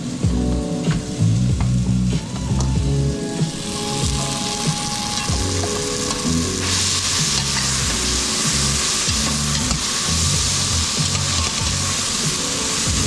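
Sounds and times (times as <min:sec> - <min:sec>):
food sizzling in a frying pan: 0:03.3 - 0:13.0.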